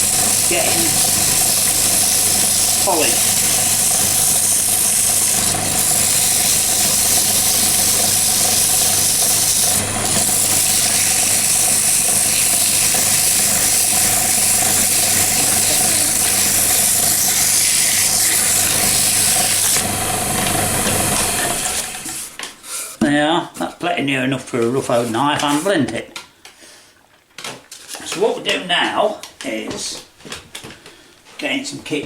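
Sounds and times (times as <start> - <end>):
abrasive hissing on spinning wood: 0.0 - 16.9
wood lathe motor running: 0.0 - 22.4.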